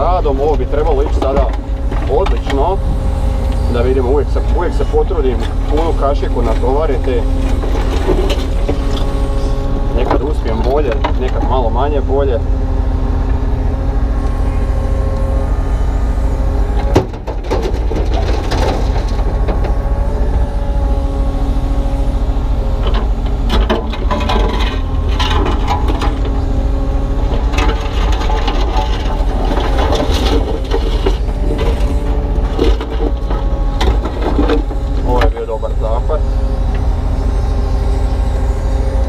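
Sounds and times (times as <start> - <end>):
excavator diesel engine running: 0.0 - 39.0
sharp knocks and crackles: 0.2 - 2.8, 5.2 - 9.2, 16.8 - 19.8, 22.8 - 26.6, 27.2 - 35.5
steel bucket scraping concrete: 23.5 - 26.5, 27.2 - 36.2.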